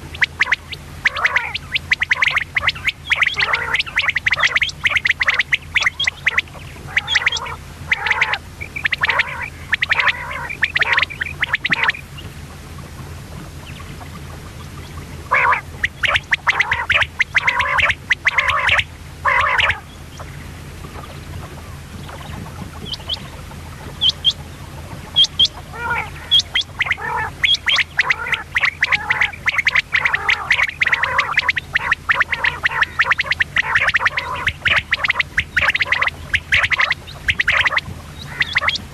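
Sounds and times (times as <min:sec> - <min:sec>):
quail calling in raspy bursts: 0:00.0 - 0:38.9
steady low hum: 0:00.0 - 0:38.9.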